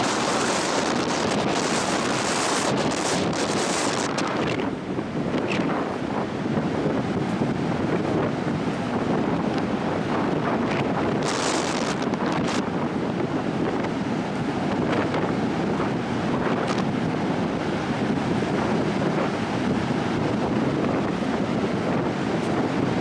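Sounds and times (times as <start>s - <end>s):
ocean surf: 0.0s - 23.0s
wind buffeting microphone: 0.0s - 23.0s.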